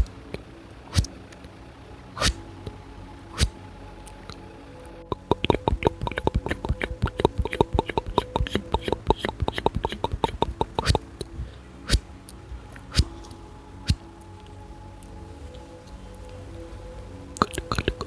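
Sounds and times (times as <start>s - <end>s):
faint steady background tones: 0.0s - 18.0s
wet mouth clicks and pops: 5.2s - 11.0s.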